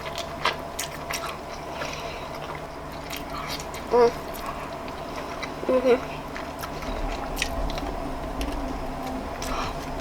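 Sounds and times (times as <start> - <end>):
wet chewing: 0.0 - 10.0
person humming: 3.9 - 4.2, 5.7 - 6.1.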